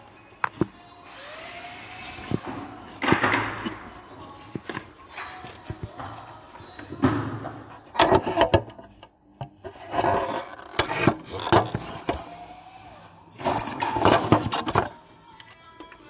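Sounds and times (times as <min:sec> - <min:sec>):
objects knocked and scraped by hand: 0:02.0 - 0:12.3, 0:13.4 - 0:15.0.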